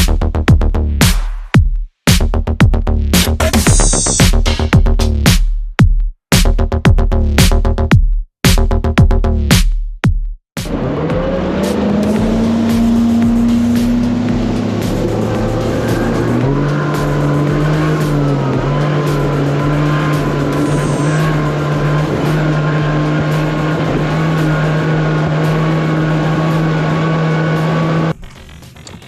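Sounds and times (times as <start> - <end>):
engine running: 10.6 - 29.0.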